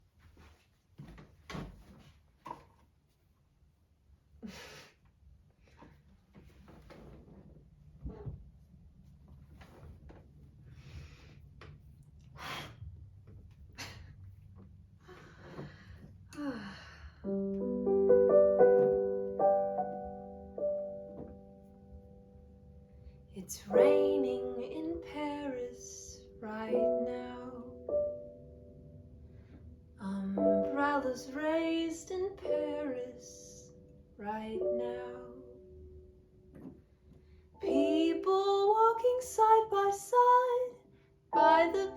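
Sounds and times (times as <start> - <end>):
piano notes and chords: 17.2 - 41.9
faint knocks and bumps: 21.1 - 21.7.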